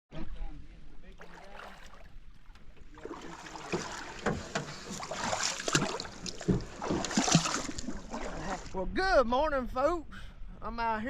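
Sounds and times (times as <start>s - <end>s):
paddles splashing water: 1.1s - 8.8s
sharp knocks: 3.7s - 7.9s.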